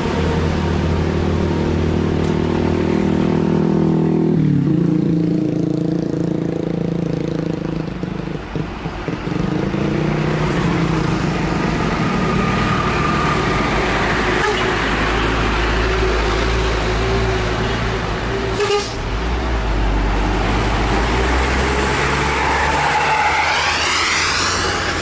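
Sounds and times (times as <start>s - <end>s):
diesel truck engine pulling uphill: 8.4s - 25.0s.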